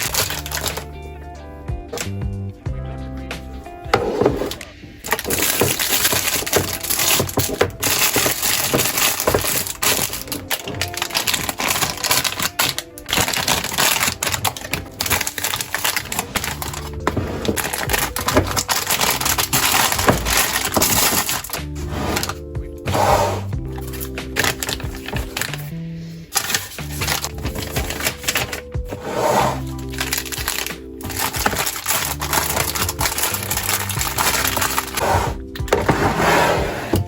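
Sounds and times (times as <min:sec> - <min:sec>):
packaging crackling and rattling: 0:00.0 - 0:00.9, 0:03.9 - 0:36.2
background music: 0:00.0 - 0:37.0.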